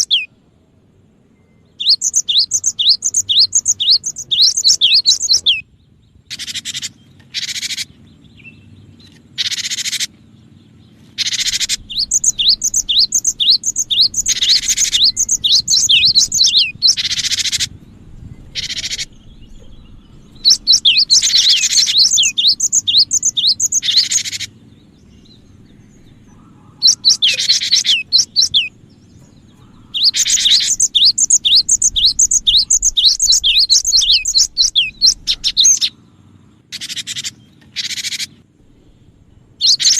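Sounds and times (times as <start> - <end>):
harsh buzzy bird chatter: 0.0 - 0.3, 1.6 - 39.9
tit calling: 0.0 - 0.3, 1.8 - 5.6, 11.1 - 17.8, 18.4 - 24.7, 25.6 - 36.0
faint low hum: 0.0 - 39.9.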